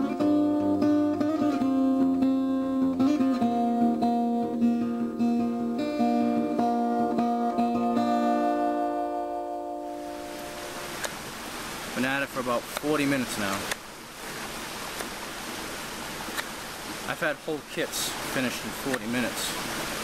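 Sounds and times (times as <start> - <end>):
acoustic guitar plucked: 0.0 - 11.1.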